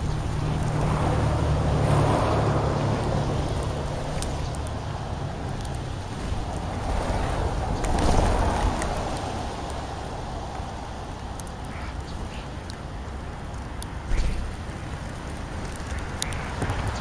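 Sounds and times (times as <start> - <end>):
traffic engine hum: 0.0 - 17.0
tyre noise of passing vehicles: 0.0 - 17.0.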